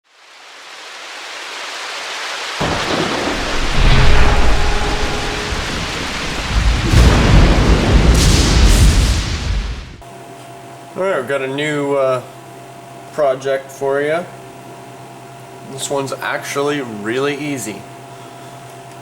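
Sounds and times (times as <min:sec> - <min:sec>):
rain hiss: 0:00.0 - 0:10.0
thunder rumbling: 0:02.6 - 0:10.0.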